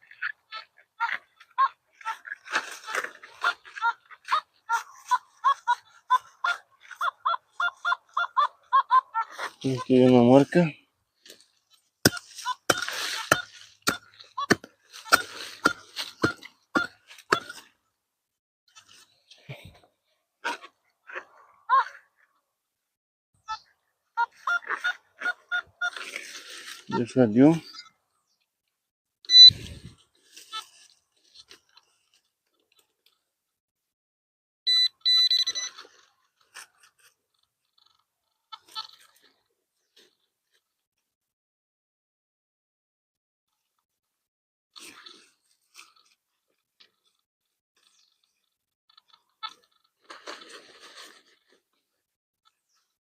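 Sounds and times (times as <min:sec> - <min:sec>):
soil crunching: 0:00.0 - 0:17.9, 0:24.2 - 0:27.9, 0:29.4 - 0:33.3, 0:35.5 - 0:40.9, 0:44.8 - 0:51.9
metal tool chopping into soil: 0:12.1 - 0:17.6
metal detector beeps: 0:29.3 - 0:29.8, 0:34.7 - 0:35.8.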